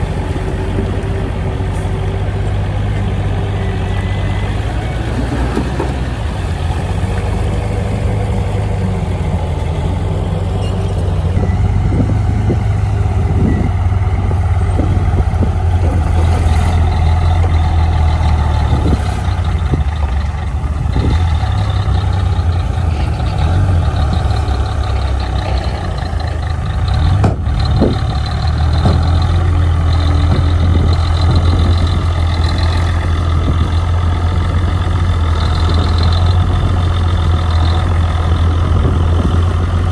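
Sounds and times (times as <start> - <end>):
machine engine humming: 0.0 - 39.9
clanks and knocks: 14.6 - 32.8.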